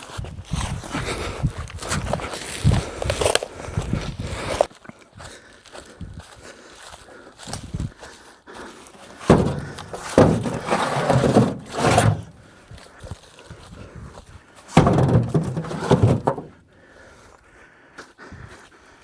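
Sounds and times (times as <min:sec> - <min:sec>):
firewood thudding: 0:09.2 - 0:12.4, 0:14.8 - 0:16.6
rustling: 0:09.2 - 0:12.5, 0:14.8 - 0:16.6.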